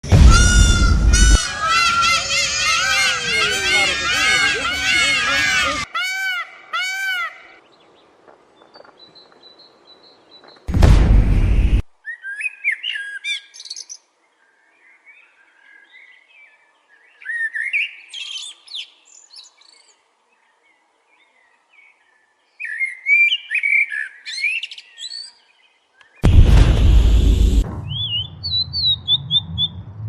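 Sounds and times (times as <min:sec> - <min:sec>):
loud rush of noise: 0:00.0 - 0:04.8, 0:10.7 - 0:11.8, 0:26.2 - 0:30.0.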